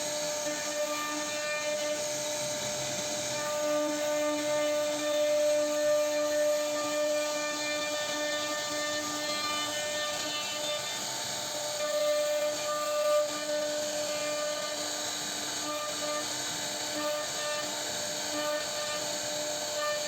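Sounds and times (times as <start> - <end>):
router spindle whining: 0.0 - 20.0.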